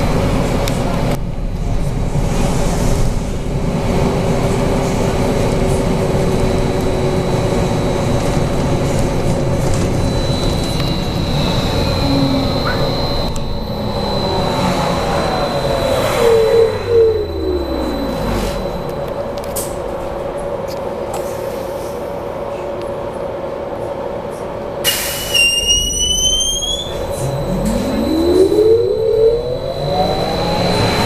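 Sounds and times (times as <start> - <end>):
road and tyre rumble: 0.0 - 31.0
high motor whine: 4.4 - 20.3, 26.6 - 31.0
electric drive hum: 9.9 - 19.2.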